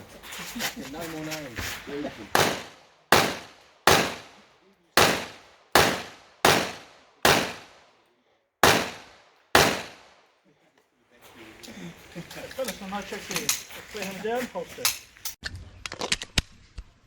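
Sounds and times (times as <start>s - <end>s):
pistol shots: 2.3s - 4.4s, 5.0s - 7.8s, 8.6s - 10.2s.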